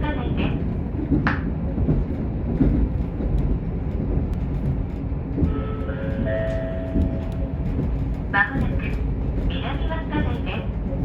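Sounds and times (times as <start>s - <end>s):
train wheels and engine rumble: 0.0s - 11.0s.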